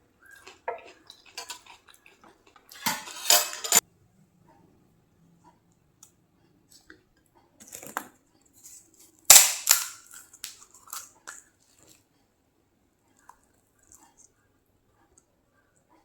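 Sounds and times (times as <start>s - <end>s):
crunchy chewing: 0.2s - 2.9s, 7.6s - 12.2s, 13.1s - 15.3s
crisp shell cracking: 9.3s - 11.4s.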